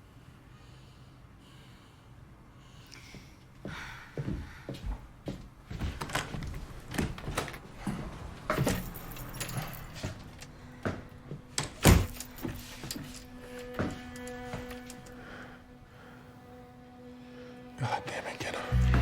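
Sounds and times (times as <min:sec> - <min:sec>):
low held musical note: 0:12.7 - 0:19.0.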